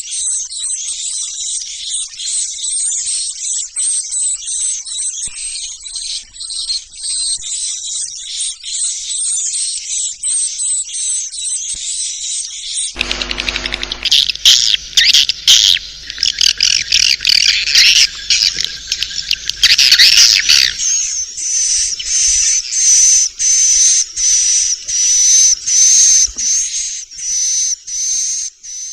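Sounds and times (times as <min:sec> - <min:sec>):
short calls with high whistle: 0:13.0 - 0:22.8
swiftlets chattering and twittering: 0:13.0 - 0:24.0.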